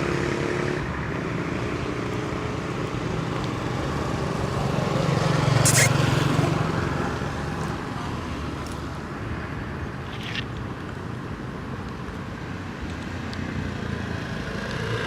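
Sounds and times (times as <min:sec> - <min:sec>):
vehicle passing on road: 0:00.0 - 0:15.0
short high-pitched sound: 0:05.7 - 0:06.0.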